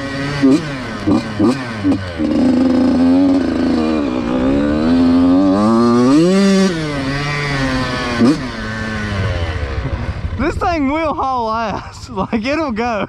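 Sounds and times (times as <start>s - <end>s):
dirt bike engine revving: 0.0s - 11.5s.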